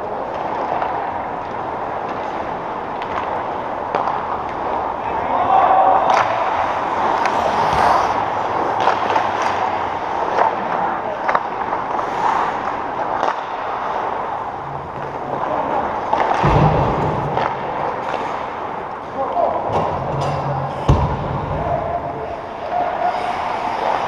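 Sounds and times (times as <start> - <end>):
arena crowd din: 4.8 - 11.2, 14.4 - 24.0.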